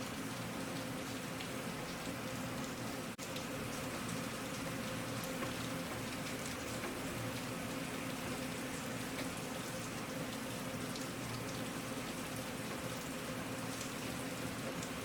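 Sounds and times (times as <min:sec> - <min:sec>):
rain falling: 0:00.0 - 0:15.0
raindrops ticking on a surface: 0:00.0 - 0:15.0.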